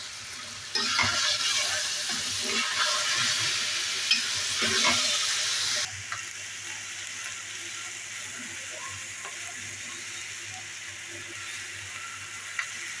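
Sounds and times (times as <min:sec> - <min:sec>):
food sizzling in a pan: 0:00.0 - 0:13.0
metal spatula scraping a pan: 0:00.7 - 0:03.5.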